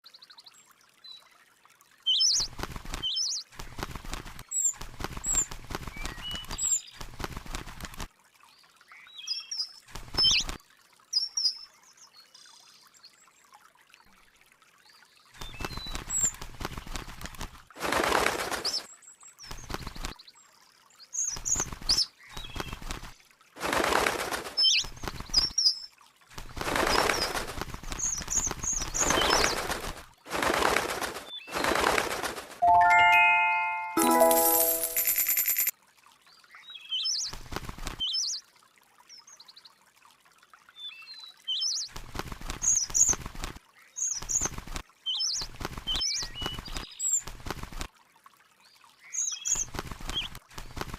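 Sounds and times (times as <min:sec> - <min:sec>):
wing flapping: 0:02.4 - 0:08.1, 0:15.4 - 0:18.9, 0:19.5 - 0:20.2, 0:21.3 - 0:25.5, 0:26.4 - 0:35.7, 0:37.3 - 0:38.0, 0:41.9 - 0:43.6, 0:44.2 - 0:44.8, 0:45.4 - 0:47.9, 0:49.5 - 0:50.9.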